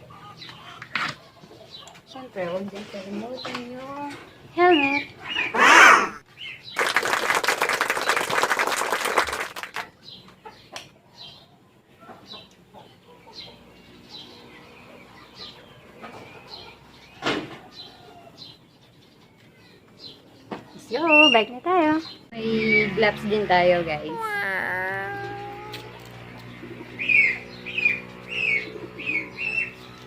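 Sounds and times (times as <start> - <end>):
small birds chirping: 0.0 - 6.9, 9.8 - 30.0.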